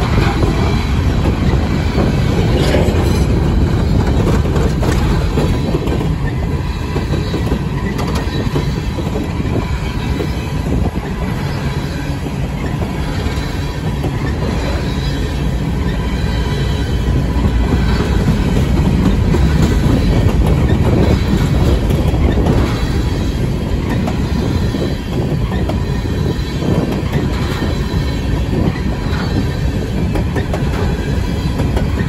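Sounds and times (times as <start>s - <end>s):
freight train wheels rumbling: 0.0s - 32.0s
high wheel squeal: 5.5s - 18.3s.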